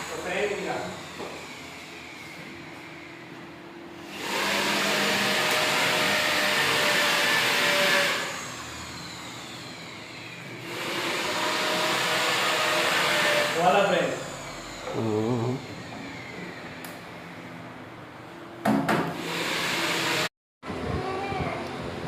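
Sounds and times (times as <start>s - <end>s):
grinder motor running: 0.0s - 3.2s, 4.0s - 17.5s, 19.2s - 20.3s
angle grinder cutting wood: 4.0s - 16.8s.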